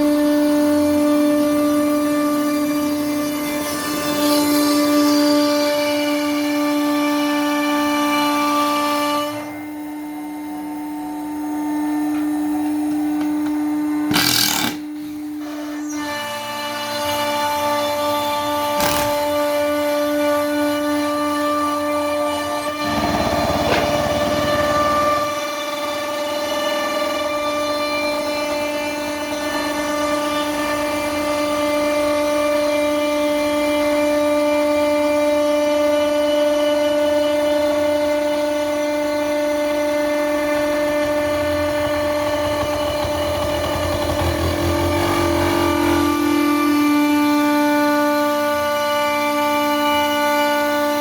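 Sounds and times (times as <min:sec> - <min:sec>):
router spindle whining: 0:00.0 - 0:51.0
bit cutting plywood: 0:12.1 - 0:32.9, 0:38.8 - 0:51.0.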